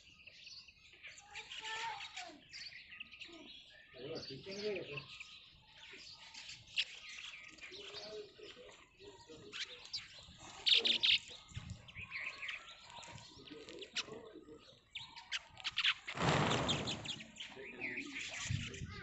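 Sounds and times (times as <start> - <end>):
sparrows chirping: 0.0 - 19.0
loud rush of noise: 16.2 - 17.2.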